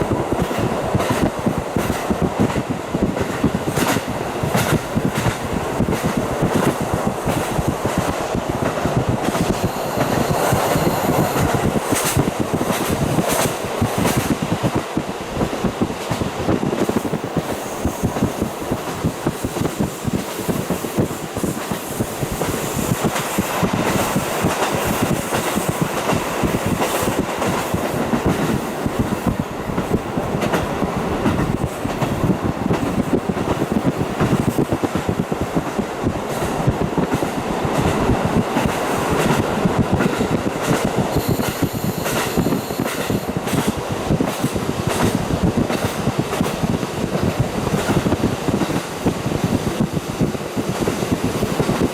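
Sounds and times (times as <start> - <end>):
train running noise: 0.0 - 51.9
wheels clacking on track: 0.0 - 51.9.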